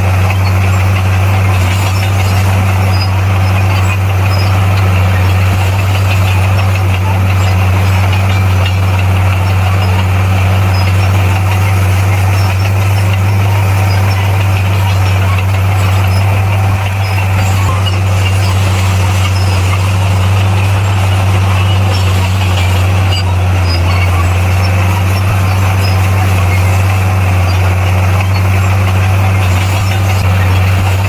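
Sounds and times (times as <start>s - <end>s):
diesel engine running loudly: 0.0s - 31.0s.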